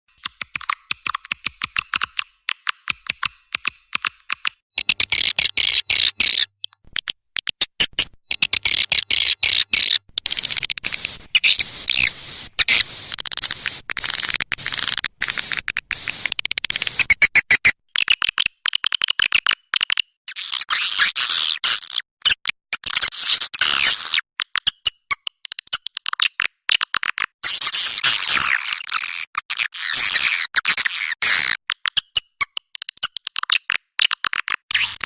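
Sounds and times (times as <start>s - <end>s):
swiftlet chirps and twitters: 9.2s - 17.3s.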